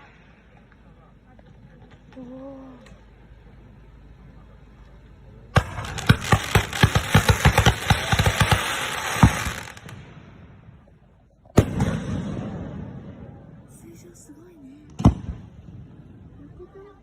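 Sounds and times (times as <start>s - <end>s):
fireworks bursting: 5.5s - 13.8s.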